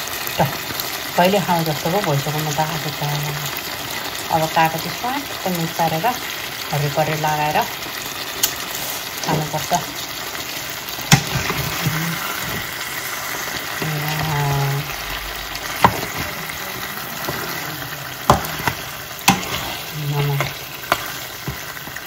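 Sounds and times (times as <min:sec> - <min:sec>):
meat sizzling in a wok: 0:00.0 - 0:22.0
wooden spatula knocking on pan: 0:15.6 - 0:16.4, 0:18.2 - 0:19.6.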